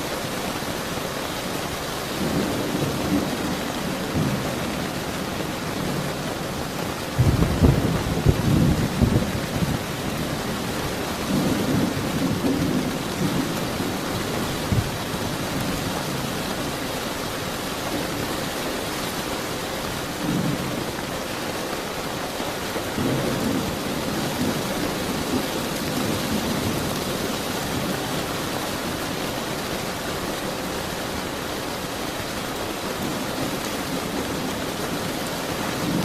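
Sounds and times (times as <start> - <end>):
steady rain falling: 0.0 - 36.0
thunder rumbling: 2.2 - 16.4.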